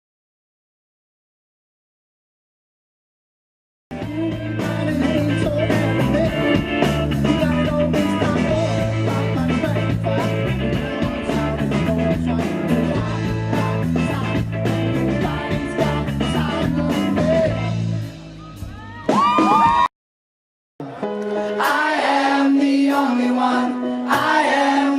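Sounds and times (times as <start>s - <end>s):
person singing: 3.9s - 19.7s
live rock band playing: 3.9s - 19.9s, 20.8s - 22.3s.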